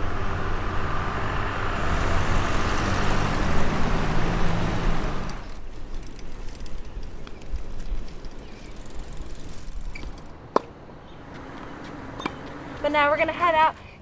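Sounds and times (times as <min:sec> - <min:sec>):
vehicle engine running: 0:00.0 - 0:06.9.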